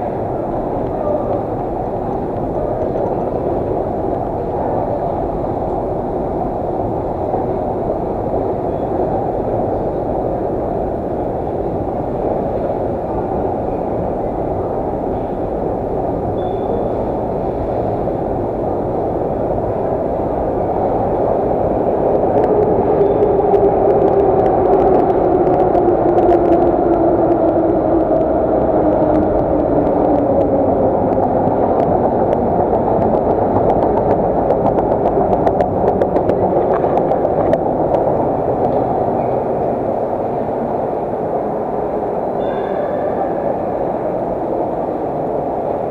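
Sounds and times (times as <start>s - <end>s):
train wheels rumbling: 0.0s - 45.9s.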